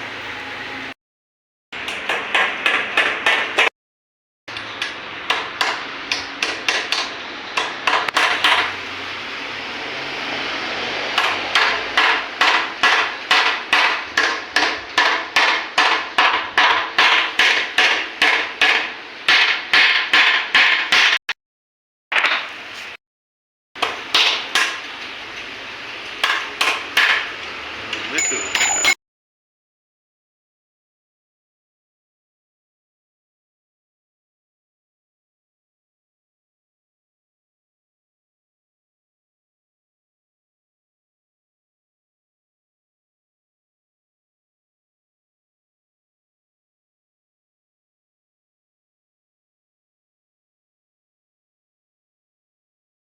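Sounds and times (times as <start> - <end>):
hammer striking metal: 1.8 - 3.7, 11.1 - 21.2, 27.9 - 29.0.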